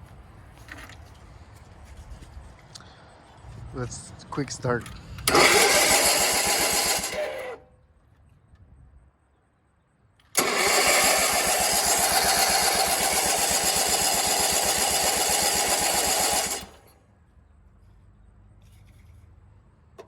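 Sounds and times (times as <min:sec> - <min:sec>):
tractor engine turning over: 0:05.2 - 0:07.6, 0:10.3 - 0:17.0.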